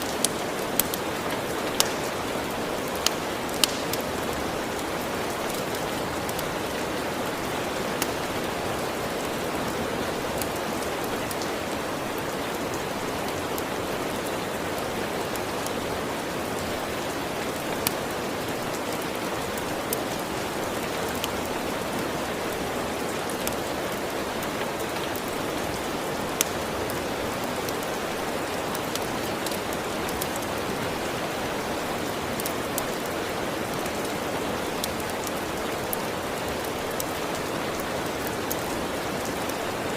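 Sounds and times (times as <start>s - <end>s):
wood fire popping: 0.0s - 9.3s
rain falling: 0.0s - 39.9s.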